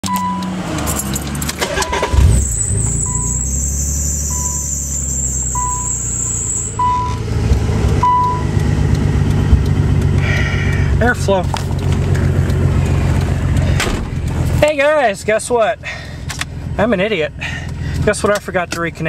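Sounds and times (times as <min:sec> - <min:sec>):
short electronic beep: 0:00.0 - 0:00.5, 0:01.7 - 0:07.2, 0:08.0 - 0:08.6
car engine running: 0:00.1 - 0:19.0.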